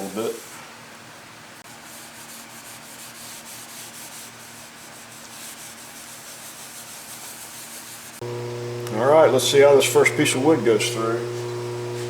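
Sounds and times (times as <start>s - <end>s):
hand rubbing wax on metal: 1.7s - 8.2s.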